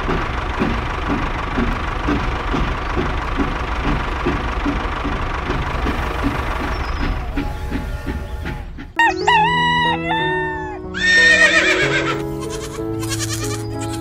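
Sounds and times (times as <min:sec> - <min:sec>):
background music: 0:07.6 - 0:14.0
rooster crowing: 0:09.0 - 0:11.3.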